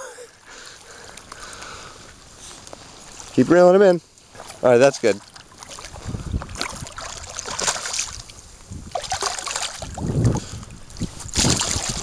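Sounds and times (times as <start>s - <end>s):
wind hiss on microphone: 5.8s - 12.0s.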